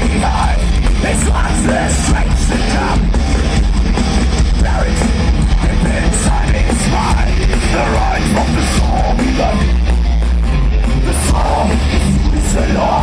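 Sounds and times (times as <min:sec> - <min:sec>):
heavy metal music: 0:00.0 - 0:13.0
person singing: 0:04.6 - 0:09.7, 0:11.0 - 0:13.0.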